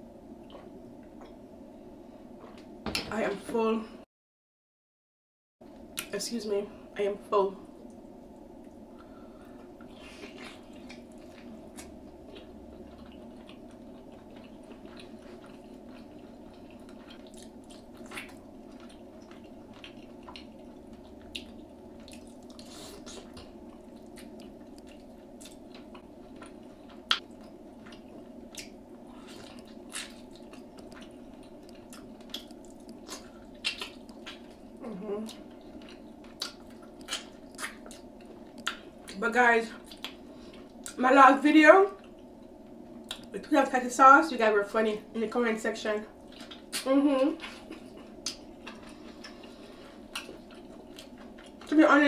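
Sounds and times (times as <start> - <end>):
low background hum: 0.0 - 4.1, 5.6 - 52.0
chewing and wet mouth sounds: 0.4 - 1.4, 7.8 - 41.0, 41.9 - 43.4, 46.1 - 51.8.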